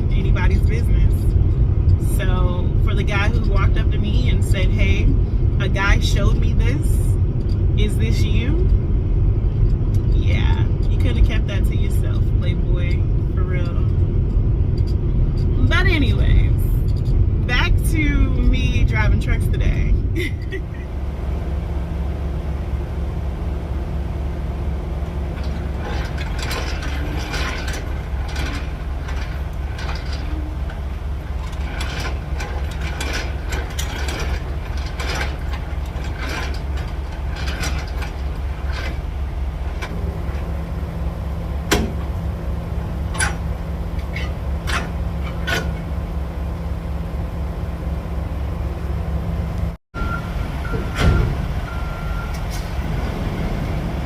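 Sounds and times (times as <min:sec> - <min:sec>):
truck engine droning: 0:00.0 - 0:54.0
light clicks and rattles: 0:24.6 - 0:46.1.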